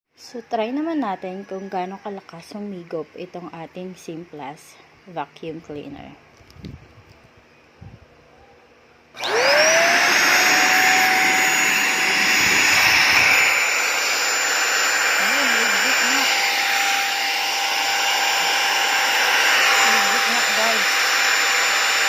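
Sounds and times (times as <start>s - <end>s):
vacuum cleaner whining: 9.1s - 22.0s.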